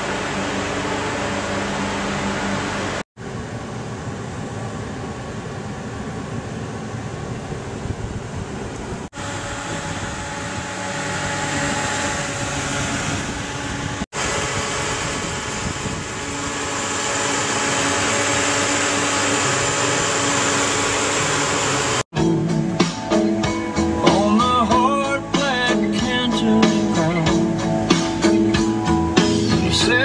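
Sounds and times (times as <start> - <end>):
car engine idling: 0.0 - 22.0
guitar music: 22.2 - 30.0.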